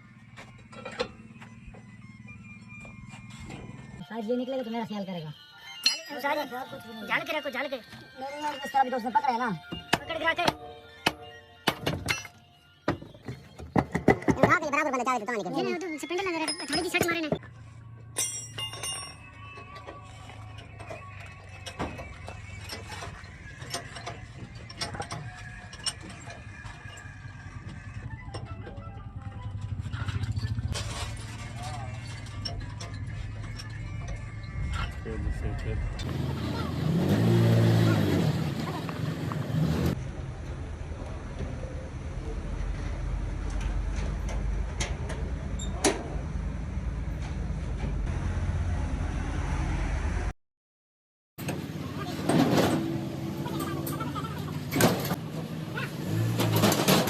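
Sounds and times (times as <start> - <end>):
metal tools clicking and clinking: 16.2 - 17.4, 18.1 - 28.8, 29.6 - 35.0.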